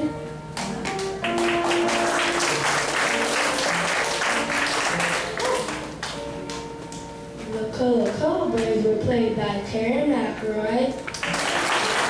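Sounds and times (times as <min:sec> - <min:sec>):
music playing: 0:00.0 - 0:12.0
audience applauding: 0:00.6 - 0:06.2, 0:11.1 - 0:12.0.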